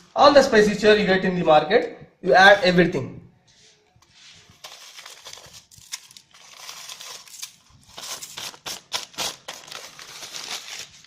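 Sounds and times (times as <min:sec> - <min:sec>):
dry spices crinkling and rustling: 0:03.5 - 0:11.0.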